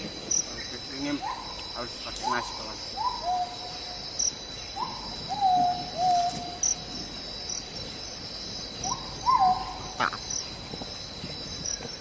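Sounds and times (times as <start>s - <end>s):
insects droning: 0.0s - 12.0s
bird whistled calls: 1.1s - 3.9s, 4.8s - 6.6s, 8.8s - 10.0s.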